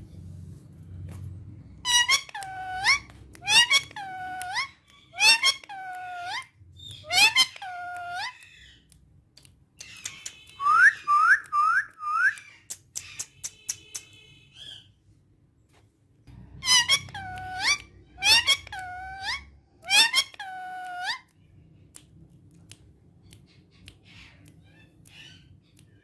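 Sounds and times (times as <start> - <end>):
parrot squeaky calls: 1.8 - 8.8, 9.8 - 11.4, 16.6 - 21.3.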